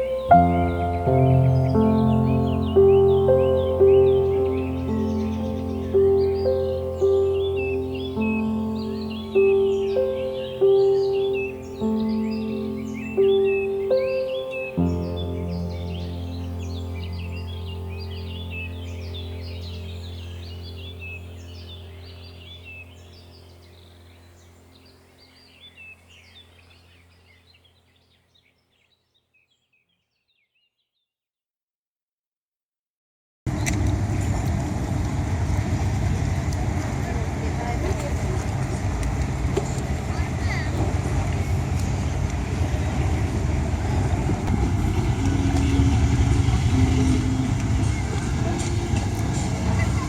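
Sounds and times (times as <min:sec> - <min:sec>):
low engine rumble: 0:00.0 - 0:27.1, 0:33.5 - 0:50.0
small birds chirping: 0:00.0 - 0:31.1, 0:37.1 - 0:50.0
low steady hum: 0:33.5 - 0:50.0.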